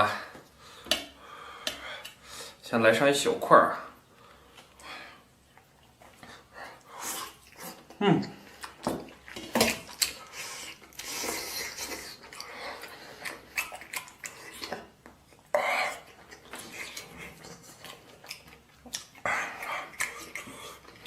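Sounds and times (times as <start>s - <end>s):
person chewing: 5.4s - 21.0s.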